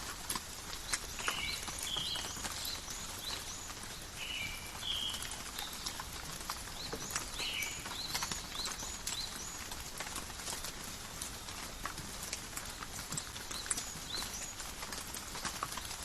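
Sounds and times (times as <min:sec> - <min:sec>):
calm rain: 0:00.0 - 0:16.0
birds chirping: 0:00.8 - 0:09.7.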